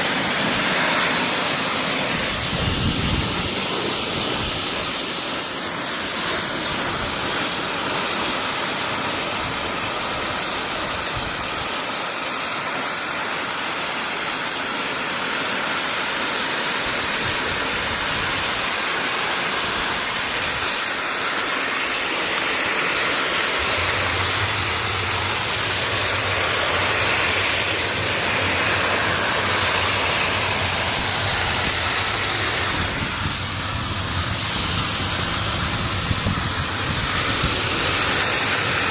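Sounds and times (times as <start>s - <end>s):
pressure washer spraying: 0.0s - 38.9s
steady low hum: 22.4s - 38.9s.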